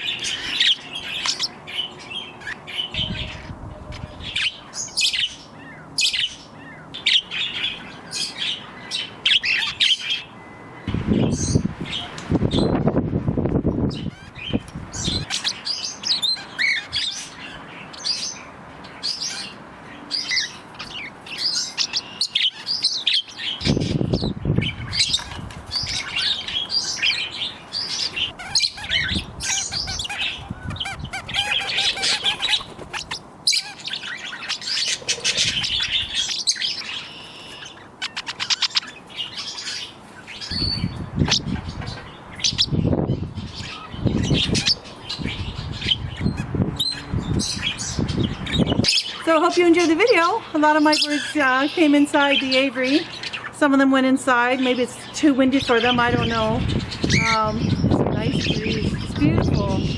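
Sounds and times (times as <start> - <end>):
birds chirping and chattering: 0.0 - 59.9
wind rumbling on microphone: 2.8 - 4.7, 10.8 - 15.4, 23.5 - 33.2, 35.1 - 36.3, 40.5 - 50.2, 55.5 - 59.9.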